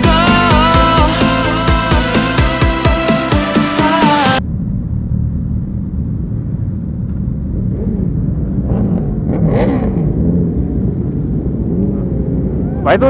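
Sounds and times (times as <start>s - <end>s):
engine revving: 0.0s - 13.0s
motorbike engines rumbling: 4.4s - 13.0s.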